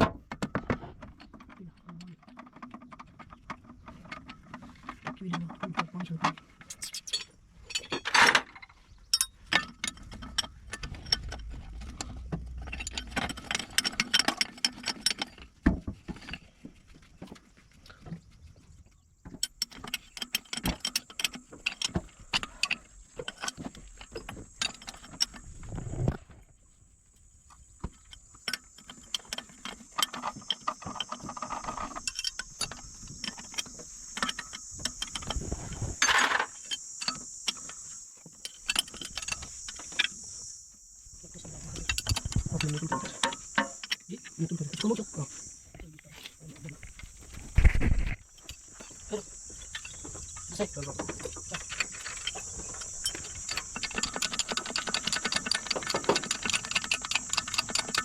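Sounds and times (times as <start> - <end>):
metal tools clinking on metal parts: 0.4 - 16.5, 19.4 - 25.8, 28.0 - 40.4, 41.3 - 45.3, 48.3 - 58.0.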